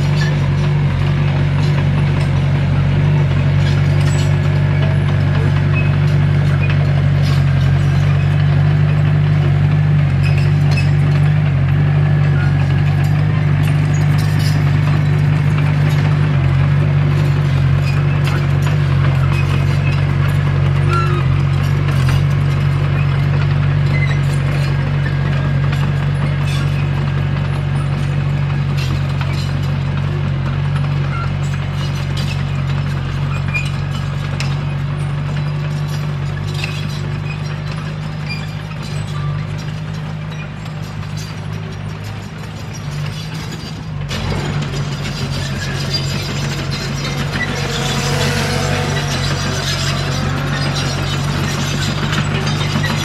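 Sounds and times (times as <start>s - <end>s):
bulldozer diesel engine running: 0.0s - 53.0s
steel tracks clattering: 31.3s - 53.0s.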